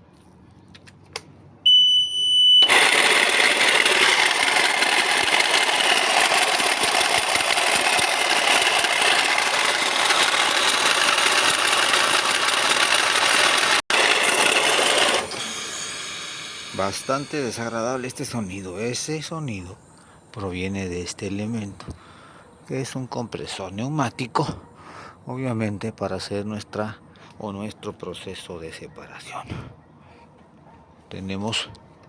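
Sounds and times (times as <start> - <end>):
short beep: 1.7 - 2.7
harsh rough compressor noise: 2.6 - 22.2.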